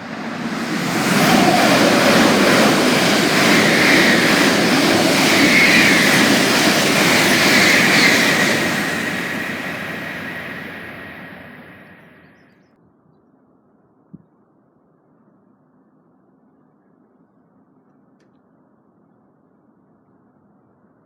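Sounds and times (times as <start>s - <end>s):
high whine: 0.0s - 12.4s
train passing at speed: 0.0s - 12.5s.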